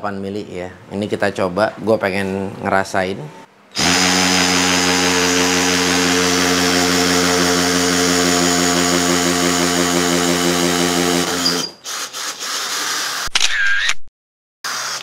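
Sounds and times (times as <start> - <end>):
hammer drill boring into concrete: 3.8 - 11.8.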